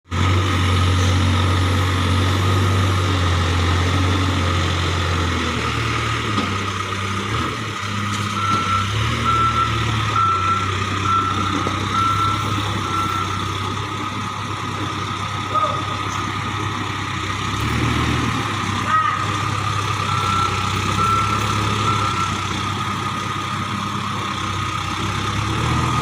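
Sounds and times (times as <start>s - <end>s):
diesel engine running: 0.0s - 26.0s
reversing alarm beeping: 8.2s - 16.1s, 18.9s - 23.1s.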